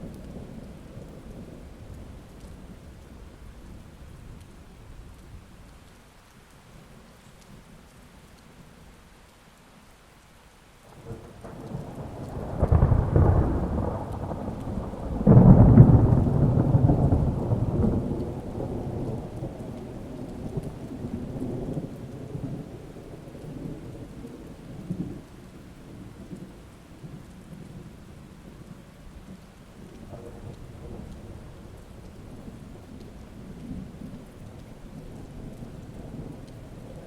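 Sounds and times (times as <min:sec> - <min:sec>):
steady rain: 0:00.0 - 0:37.0
thunder rumbling: 0:10.9 - 0:37.0.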